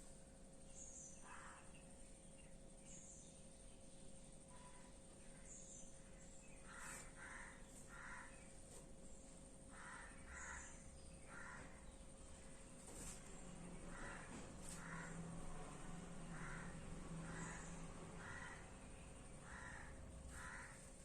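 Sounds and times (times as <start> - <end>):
faint bird calls: 0.7 - 3.5, 4.4 - 21.0.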